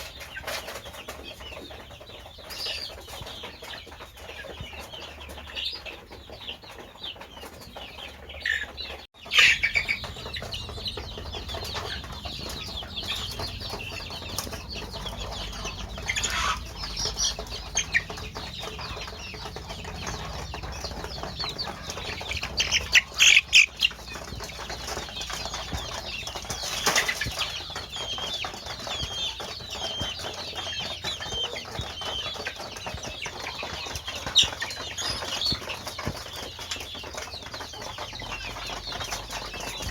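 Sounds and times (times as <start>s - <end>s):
chickens clucking: 0.0s - 39.9s
wings flapping: 9.3s - 39.9s.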